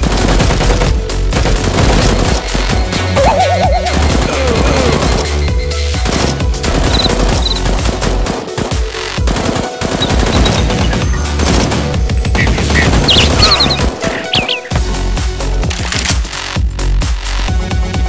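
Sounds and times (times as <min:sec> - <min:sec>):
rapid machine-gun fire: 0:00.0 - 0:02.9, 0:03.6 - 0:14.5
background music with steady beat: 0:00.0 - 0:18.0.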